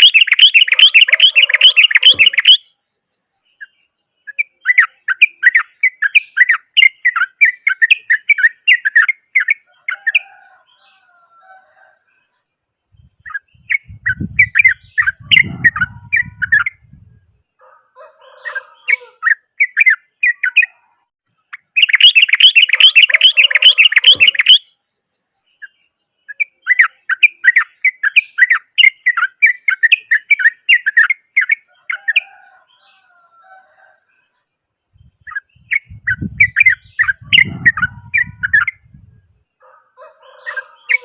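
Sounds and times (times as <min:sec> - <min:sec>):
fast bird chatter: 0:00.0 - 0:02.6, 0:13.3 - 0:16.8, 0:21.6 - 0:24.6, 0:35.2 - 0:38.8.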